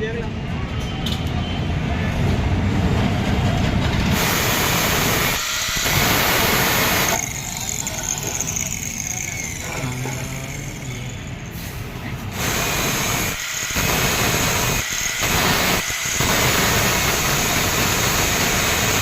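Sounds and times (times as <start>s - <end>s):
grinding wheel running: 3.9s - 11.5s, 12.2s - 19.0s
drill bit grinding hiss: 4.1s - 11.3s, 12.4s - 19.0s.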